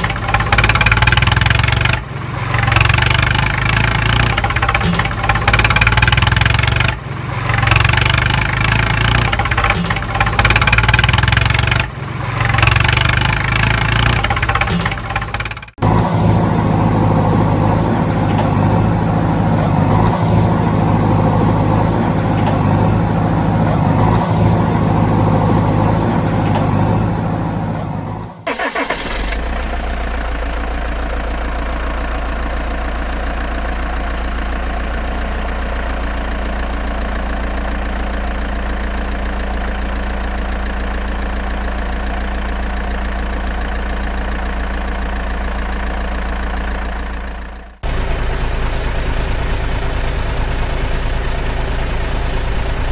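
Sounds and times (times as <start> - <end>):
deeper engine idling: 0.0 - 52.9
vehicle engine running: 0.0 - 52.9.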